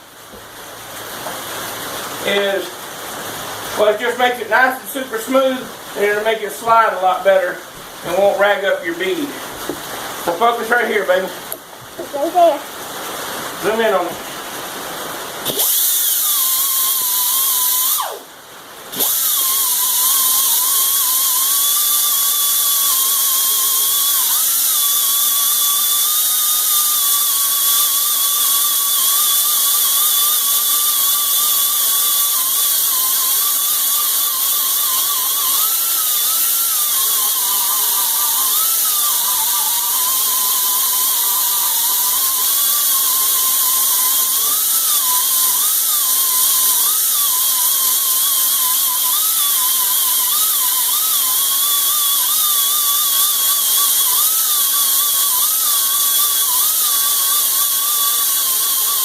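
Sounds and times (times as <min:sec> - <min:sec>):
air grinder whining on metal: 0:15.4 - 0:18.3, 0:18.9 - 0:59.0.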